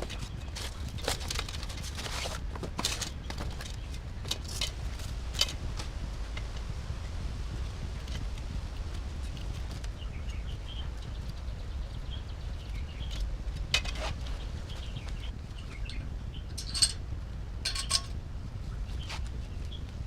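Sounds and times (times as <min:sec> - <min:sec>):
steady low rumble: 0:00.0 - 0:20.0
birds chirping faintly: 0:08.8 - 0:20.0.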